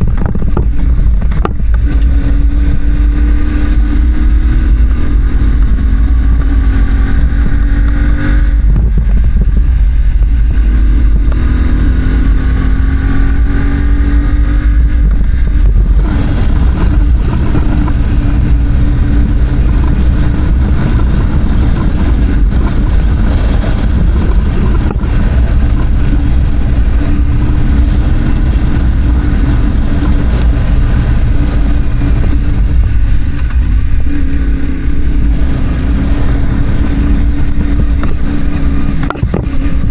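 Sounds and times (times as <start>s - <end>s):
heavy low rumble: 0.0s - 39.9s
motorcycle engine revving: 0.0s - 39.9s.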